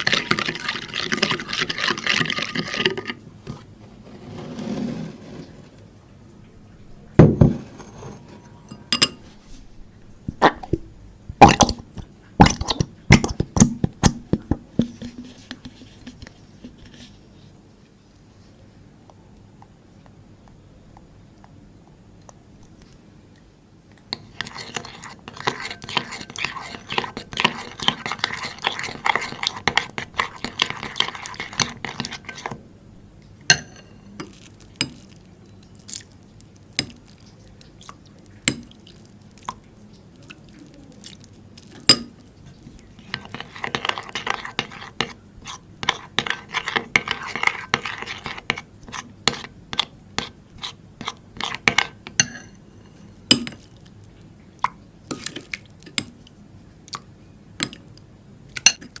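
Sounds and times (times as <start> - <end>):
slime crackling in a bowl: 34.2 - 52.5.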